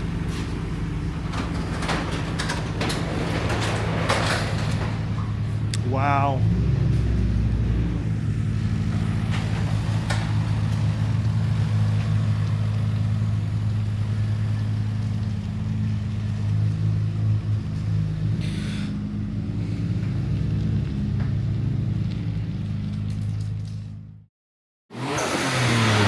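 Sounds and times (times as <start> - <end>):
car engine idling: 0.0 - 24.2.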